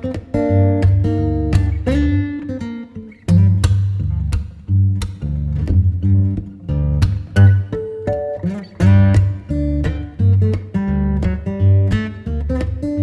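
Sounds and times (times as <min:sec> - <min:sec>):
plucked guitar: 0:00.0 - 0:13.0
bass line: 0:00.4 - 0:02.4, 0:03.3 - 0:07.8.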